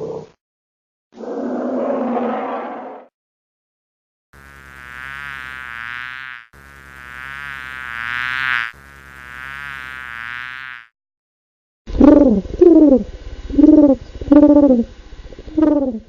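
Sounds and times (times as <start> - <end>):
flying insect buzzing: 4.4 - 11.0, 11.9 - 16.0.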